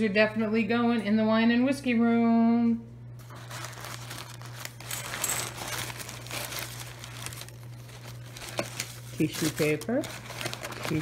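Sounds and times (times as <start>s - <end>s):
tissue paper rustling and crinkling: 3.2s - 11.0s.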